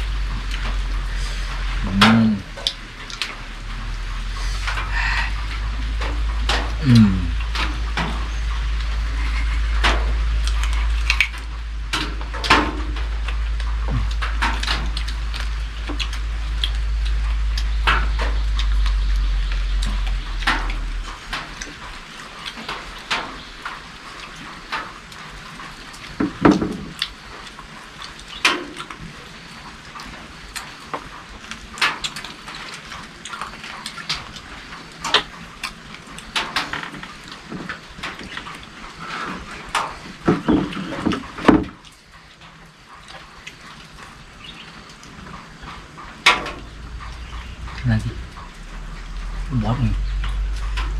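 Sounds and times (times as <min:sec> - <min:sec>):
low rumble: 0:00.0 - 0:22.1, 0:46.0 - 0:50.9.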